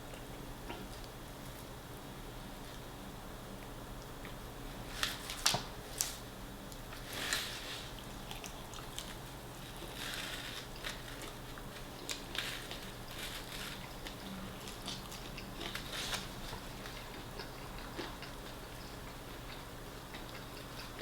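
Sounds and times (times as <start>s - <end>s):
crunching fried chicken: 4.8s - 21.0s
chewing: 6.7s - 21.0s.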